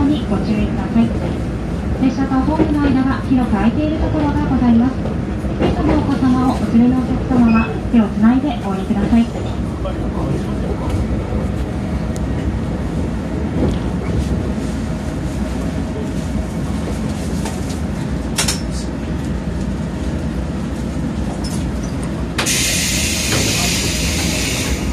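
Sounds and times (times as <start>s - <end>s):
train clacks: 0.0s - 20.2s, 21.2s - 24.9s
train rumbling: 0.0s - 24.9s
compressed air hiss: 22.4s - 24.9s.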